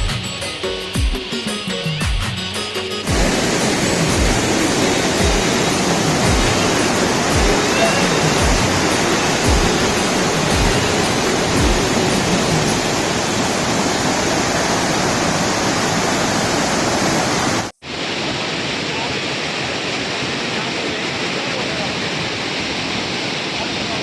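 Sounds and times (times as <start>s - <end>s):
music bass beat: 0.0s - 12.8s
waterfall roaring: 3.0s - 24.0s.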